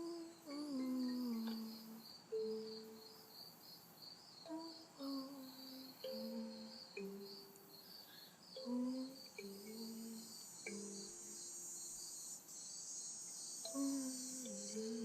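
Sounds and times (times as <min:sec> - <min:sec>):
person humming a slow melody: 0:00.0 - 0:03.2, 0:04.4 - 0:07.9, 0:08.5 - 0:11.9, 0:13.6 - 0:15.0
cicadas chirping: 0:00.0 - 0:15.0
continuous high insect buzz: 0:00.0 - 0:15.0.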